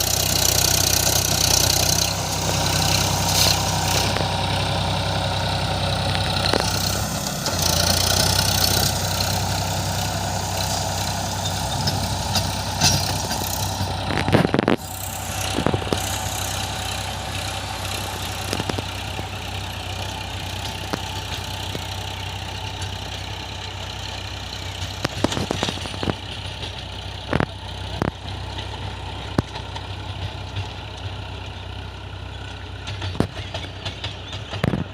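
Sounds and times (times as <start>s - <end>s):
tractor engine running: 0.0s - 34.9s
sharp knocks and clatters: 11.6s - 14.8s, 32.8s - 34.9s.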